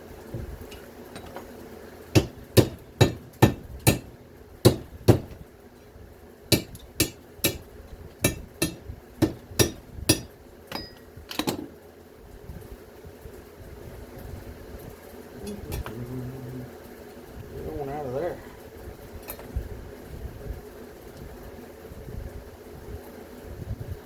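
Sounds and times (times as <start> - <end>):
hammer striking scrap metal: 2.2 - 4.1, 4.7 - 5.4, 6.5 - 11.6.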